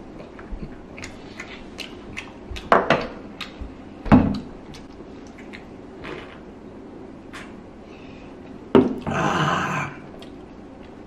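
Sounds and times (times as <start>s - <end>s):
chewing sticky rice cake: 0.2s - 2.7s
wet mouth clicks: 0.9s - 2.7s, 4.7s - 6.4s.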